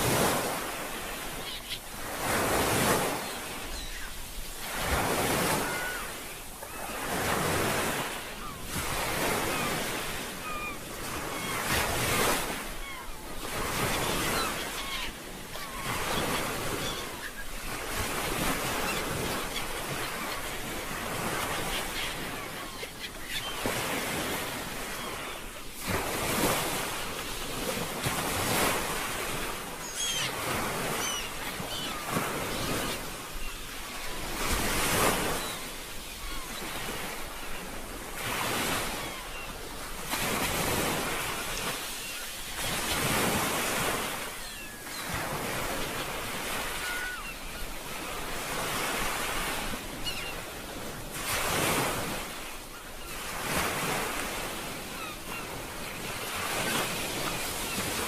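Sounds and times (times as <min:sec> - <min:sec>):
ocean waves washing in: 0:00.0 - 0:15.0.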